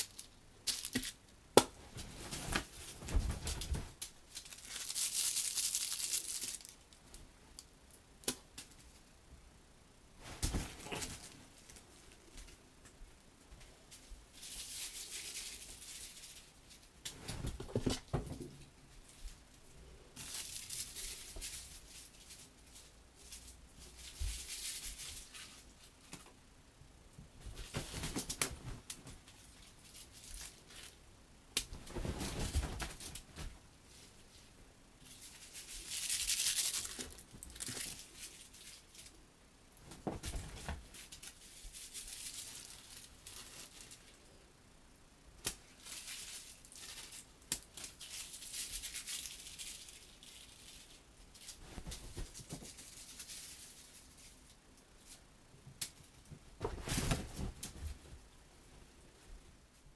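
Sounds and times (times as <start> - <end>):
toy balls crinkling: 0.0 - 1.3, 3.9 - 7.7, 35.2 - 39.2, 45.7 - 54.5
bedding rustling: 1.7 - 6.8, 10.1 - 26.1, 27.1 - 44.1, 47.8 - 59.9.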